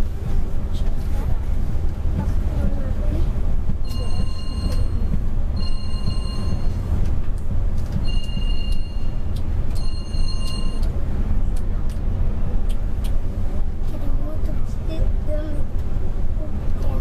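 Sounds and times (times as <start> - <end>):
coach engine rumble: 0.0 - 17.0
road noise: 0.0 - 17.0
electronic warning beeps: 3.9 - 6.8, 8.0 - 10.9.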